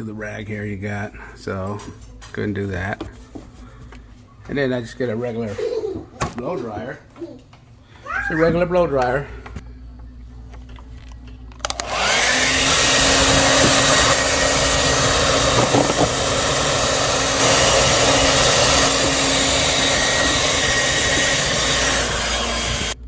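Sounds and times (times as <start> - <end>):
hair dryer blowing: 11.6 - 23.0.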